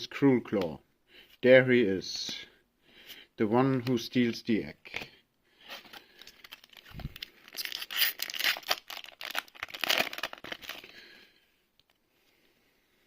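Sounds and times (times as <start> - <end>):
foil wrapper tearing and crinkling: 6.2 - 10.9.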